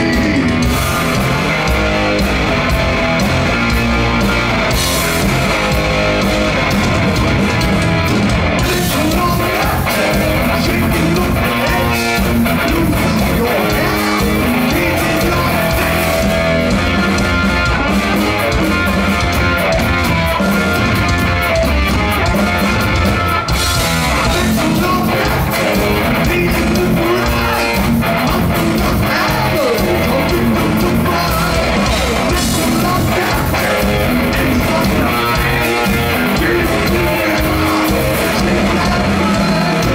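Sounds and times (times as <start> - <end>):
person singing: 0.0 - 0.8, 8.6 - 16.4, 24.1 - 39.9
heavy metal band playing: 0.0 - 39.9.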